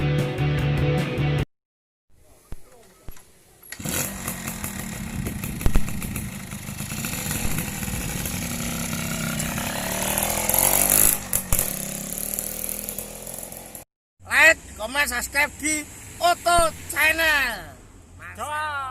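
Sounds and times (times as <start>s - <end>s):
two-stroke motorcycle engine revving: 3.8s - 13.9s.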